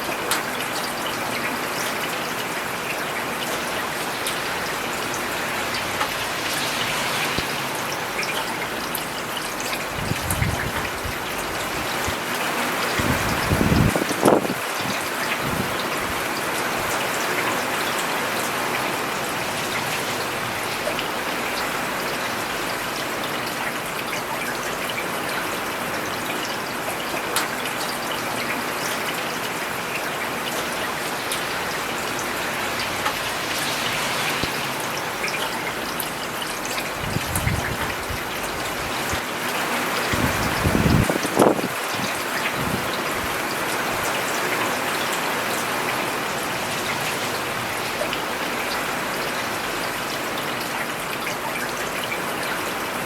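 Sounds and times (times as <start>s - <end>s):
rain falling on pavement: 0.0s - 53.0s.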